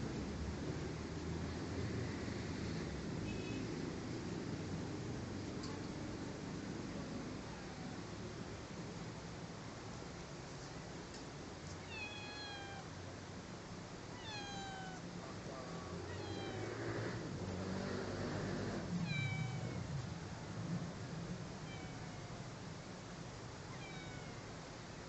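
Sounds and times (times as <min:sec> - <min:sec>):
cat meowing: 0:11.8 - 0:13.0, 0:14.1 - 0:15.1, 0:16.0 - 0:17.0, 0:19.0 - 0:19.9, 0:21.6 - 0:22.4, 0:23.7 - 0:24.5.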